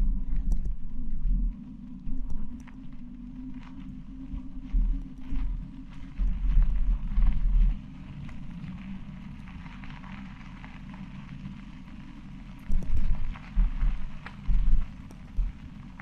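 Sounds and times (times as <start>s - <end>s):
wind buffeting microphone: 0.0s - 3.5s, 12.6s - 16.0s
riding noise low hum: 0.0s - 16.0s
tyres crackling on gravel: 5.6s - 16.0s.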